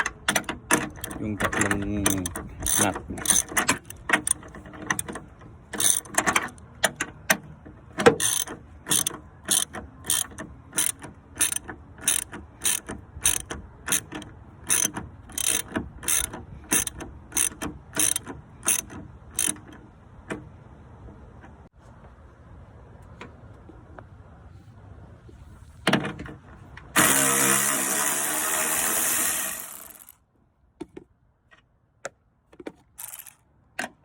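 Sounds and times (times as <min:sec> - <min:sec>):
hand ratchet wrench clicking: 0:00.2 - 0:07.0, 0:08.2 - 0:19.7, 0:27.0 - 0:30.2, 0:33.0 - 0:33.4.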